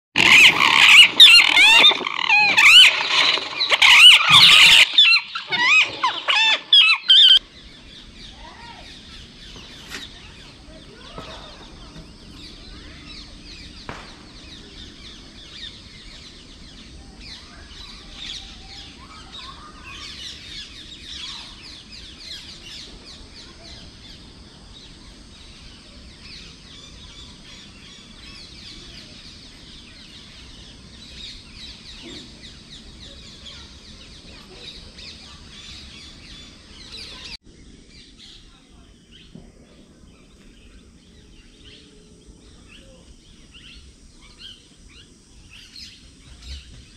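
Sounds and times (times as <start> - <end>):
high-pitched animal chirping: 0.2 - 7.4
steady low background noise: 0.2 - 46.9.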